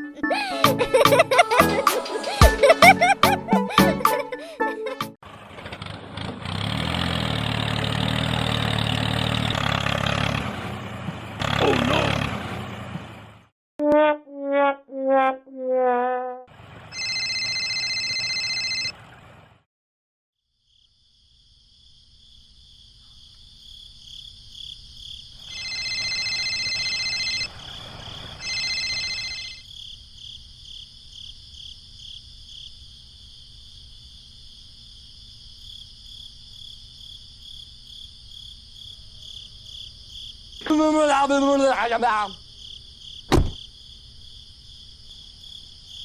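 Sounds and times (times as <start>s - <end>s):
high ringing tone: 17.0s - 18.9s, 25.6s - 27.5s, 28.4s - 29.6s
insect chorus pulsing: 20.7s - 28.9s.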